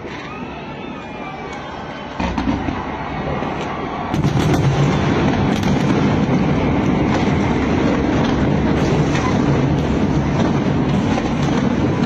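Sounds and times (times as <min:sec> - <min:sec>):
fireworks bursts rumbling: 0:00.0 - 0:12.0
sharp firework cracks: 0:03.6 - 0:12.0.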